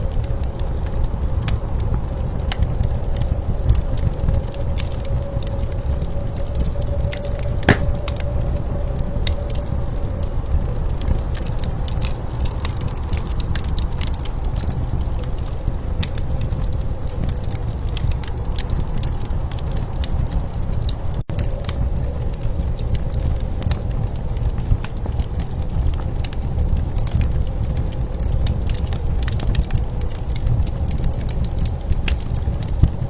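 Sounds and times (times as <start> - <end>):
blizzard wind rumble: 0.0 - 33.0
wood fire crackling: 2.1 - 15.4, 21.1 - 33.0
loud fire pop: 7.7 - 8.3.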